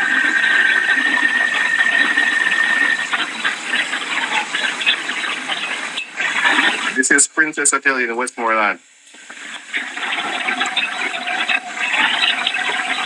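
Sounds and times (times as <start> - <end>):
hurricane wind: 0.0 - 7.0
wind whistling through a gap: 0.0 - 7.0
rain rushing: 0.0 - 13.0.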